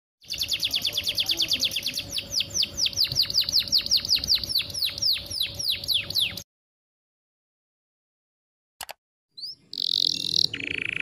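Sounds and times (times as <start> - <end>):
canary singing: 0.2 - 6.4, 9.4 - 11.0.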